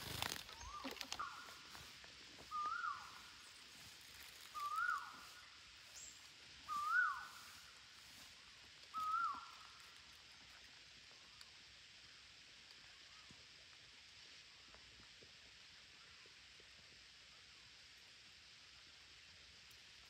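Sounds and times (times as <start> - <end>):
bird whistled call: 2.5 - 3.4, 4.5 - 6.1, 6.7 - 7.7, 8.9 - 9.8.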